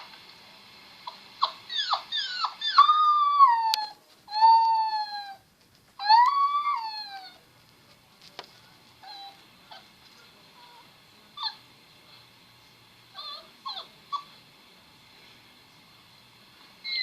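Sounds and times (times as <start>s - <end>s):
young animal whimpering: 1.0s - 5.4s, 6.0s - 7.4s, 9.0s - 9.9s, 13.1s - 14.3s.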